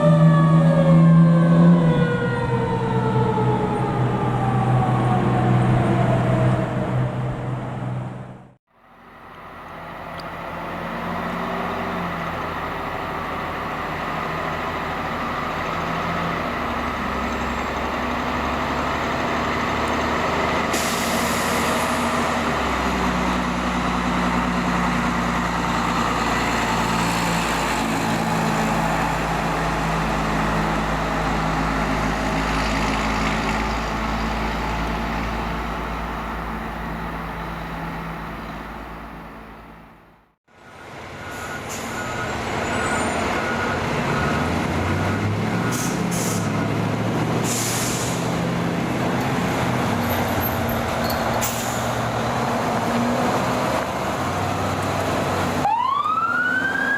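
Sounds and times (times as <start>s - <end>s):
diesel truck engine pulling away: 0.0s - 56.9s
air brake hiss: 20.7s - 22.1s, 45.7s - 46.5s, 47.4s - 48.3s, 51.4s - 52.0s.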